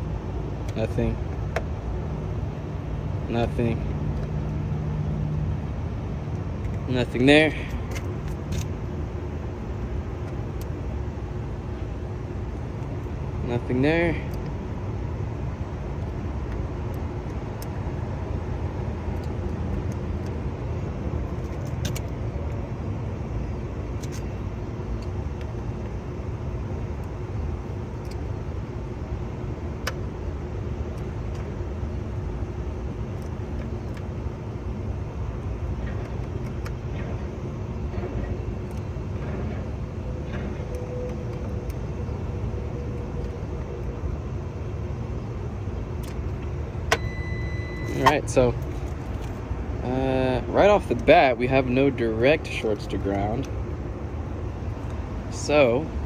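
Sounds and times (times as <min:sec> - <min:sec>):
faint steady hum: 0:00.0 - 0:56.0
steady low rumble: 0:00.0 - 0:56.0.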